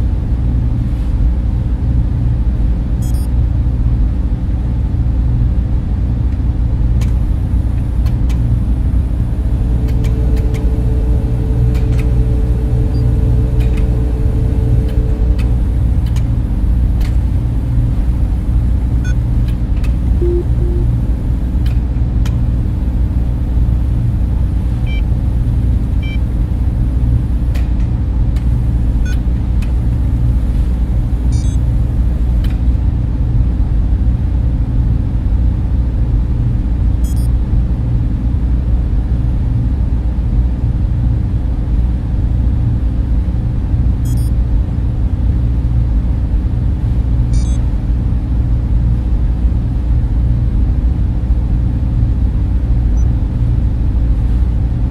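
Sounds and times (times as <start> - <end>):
cooling fans humming: 4.1 - 36.8, 37.6 - 54.9
faint short high blips: 20.2 - 21.0.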